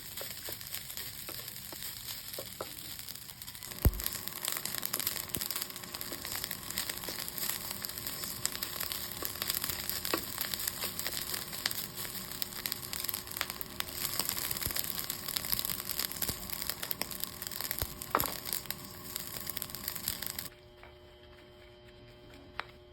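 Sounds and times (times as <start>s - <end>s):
food sizzling in hot oil: 0.0s - 20.5s
faint hum: 3.4s - 22.9s.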